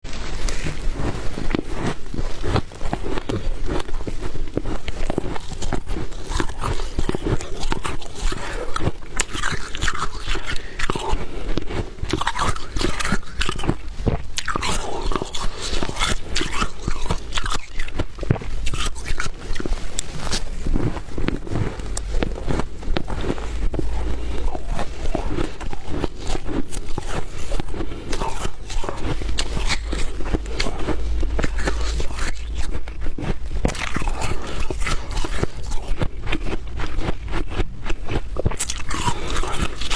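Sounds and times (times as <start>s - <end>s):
frost being chewed: 0.0s - 39.9s.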